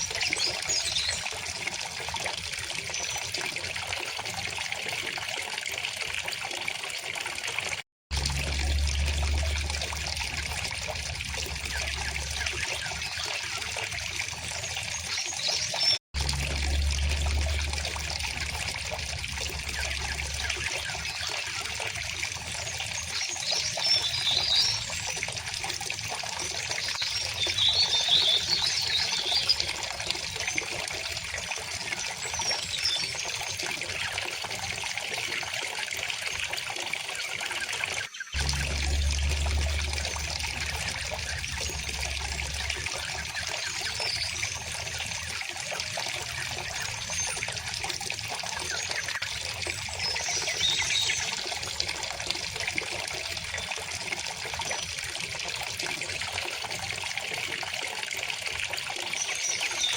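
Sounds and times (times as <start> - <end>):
stream trickling: 0.0 - 59.9
low rumble: 8.1 - 12.6, 16.2 - 20.7, 38.4 - 43.4.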